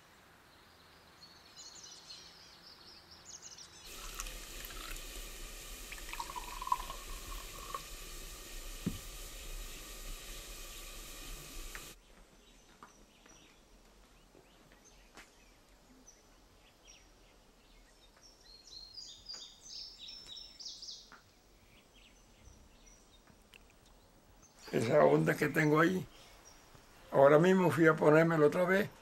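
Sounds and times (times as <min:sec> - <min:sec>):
rural ambience: 0:00.0 - 0:29.0
steady hissing noise: 0:03.2 - 0:12.2, 0:14.8 - 0:29.0
small bird chirping: 0:09.7 - 0:24.8.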